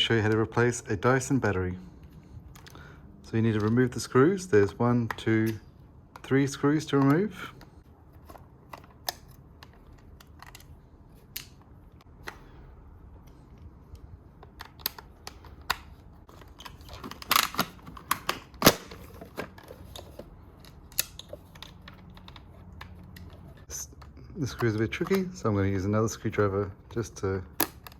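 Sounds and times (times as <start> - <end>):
screwdriver clicking and scraping: 5.0 - 12.4.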